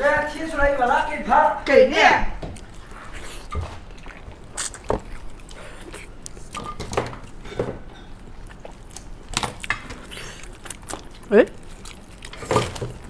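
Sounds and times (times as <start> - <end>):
wet mouth smacks: 2.6 - 6.8
person chewing and biting: 2.6 - 13.0.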